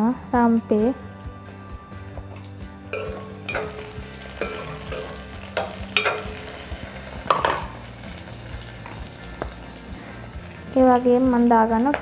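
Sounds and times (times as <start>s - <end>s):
utensil scraping a wok: 2.9s - 10.7s
meatballs sizzling in oil: 2.9s - 12.0s.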